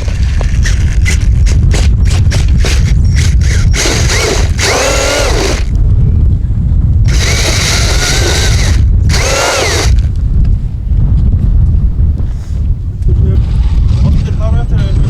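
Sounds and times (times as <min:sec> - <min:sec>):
electric motor whining: 0:00.0 - 0:05.8, 0:07.1 - 0:10.2
low rumble: 0:00.0 - 0:15.0.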